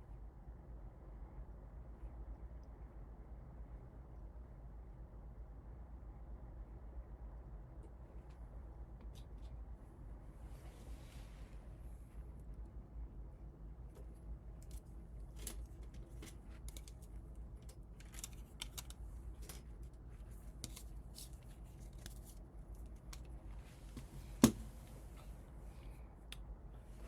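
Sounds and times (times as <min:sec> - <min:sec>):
objects being handled: 0:14.0 - 0:25.3.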